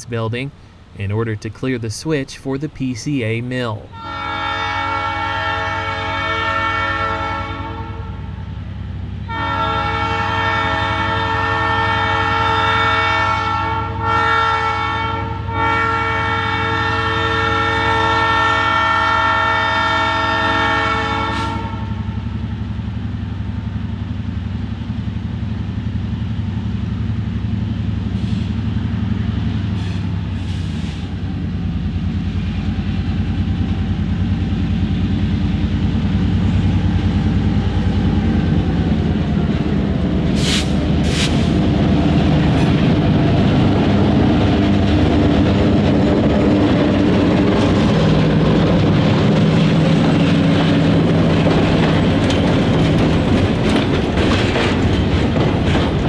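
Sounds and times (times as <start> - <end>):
locomotive horn blasts: 3.6 - 8.4, 9.2 - 22.2
locomotive engine running: 21.8 - 56.0.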